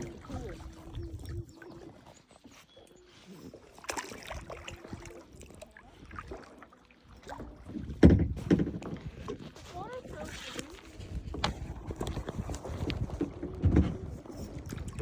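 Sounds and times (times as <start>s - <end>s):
kayak paddle splashes and drips: 0.0s - 15.0s
loud thump against kayak: 7.9s - 9.0s.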